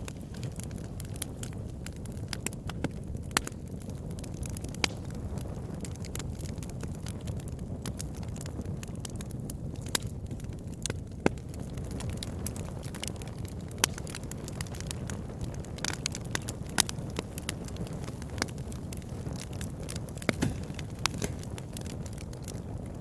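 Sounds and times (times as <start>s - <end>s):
campfire crackling: 0.0s - 23.0s.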